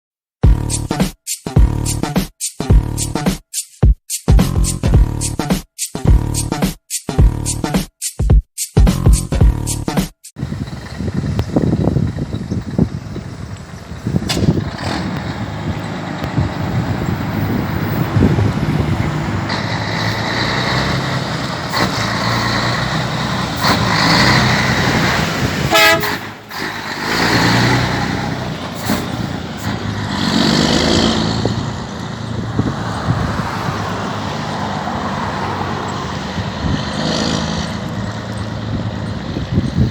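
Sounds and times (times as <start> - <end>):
truck diesel engine revving: 10.4 - 39.9
truck horn toot: 19.6 - 29.4.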